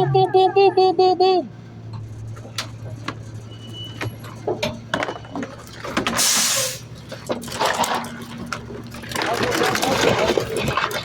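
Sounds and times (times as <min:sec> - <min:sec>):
garbage truck engine running: 0:00.0 - 0:11.0
knocks and clanks: 0:01.9 - 0:06.2.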